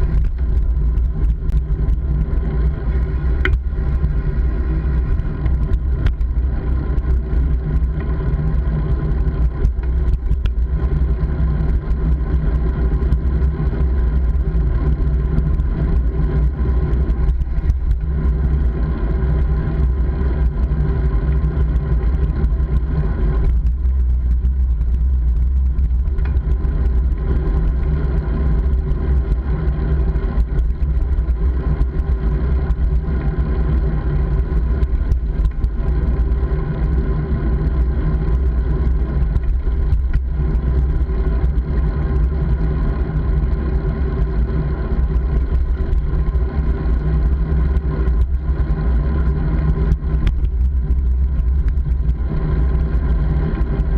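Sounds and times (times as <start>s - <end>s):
wind noise on microphone: 0.0s - 53.9s.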